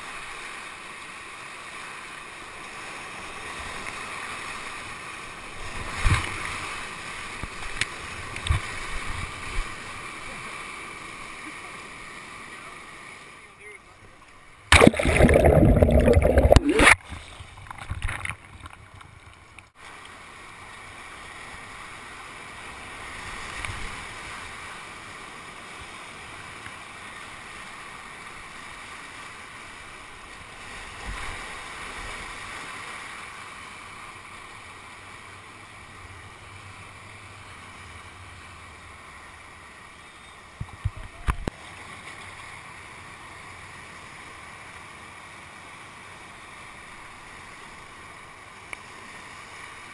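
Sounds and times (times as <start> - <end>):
whitewater rushing: 14.7 - 17.0.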